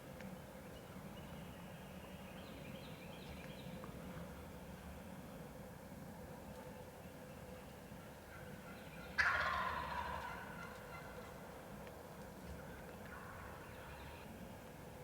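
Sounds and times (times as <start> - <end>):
turkey gobbling: 9.2 - 11.2.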